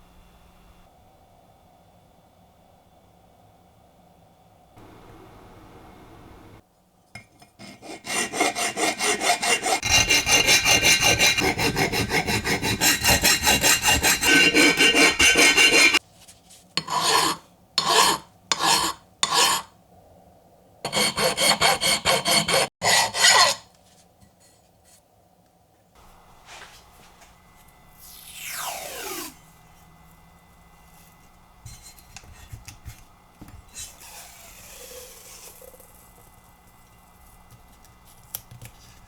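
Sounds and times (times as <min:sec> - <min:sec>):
hand sanding metal part: 0:07.6 - 0:16.0, 0:20.9 - 0:23.6, 0:30.7 - 0:35.6.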